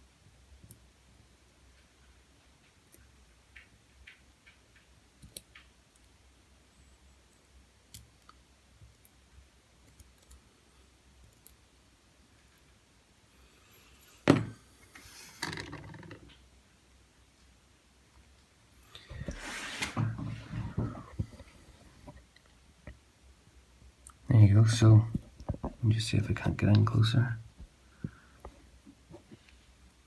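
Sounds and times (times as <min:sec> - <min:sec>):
loud thump: 0:14.3 - 0:14.6
handling rustle: 0:19.0 - 0:22.2.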